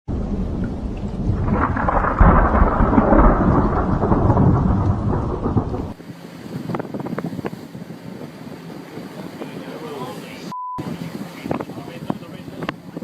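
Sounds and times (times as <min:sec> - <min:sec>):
thunder rumbling: 0:00.1 - 0:06.2
heavy rain: 0:00.1 - 0:06.5.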